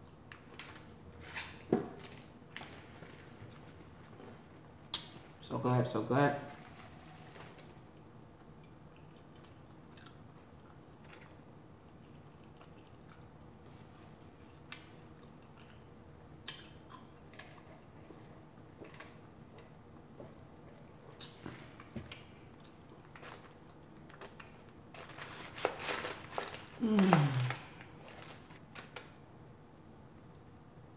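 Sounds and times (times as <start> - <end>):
person chewing food: 7.8 - 24.7.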